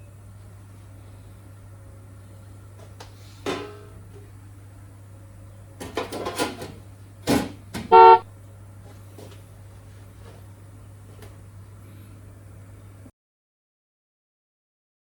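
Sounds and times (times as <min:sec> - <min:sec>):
loud short electronic beep: 0:07.9 - 0:08.2
short tone: 0:07.9 - 0:08.2.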